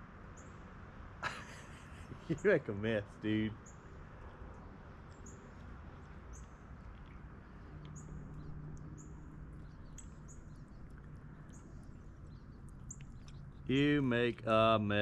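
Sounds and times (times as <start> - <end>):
low steady hum: 0.0 - 15.0
high bird chirps: 7.9 - 14.4.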